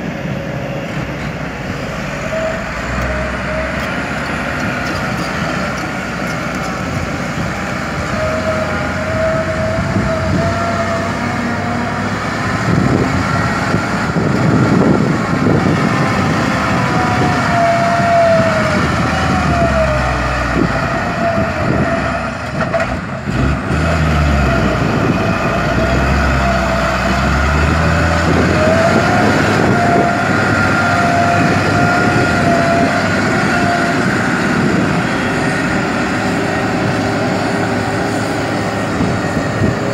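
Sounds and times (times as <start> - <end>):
excavator engine rumbling: 0.0 - 39.9
hydraulic whine: 24.2 - 39.9.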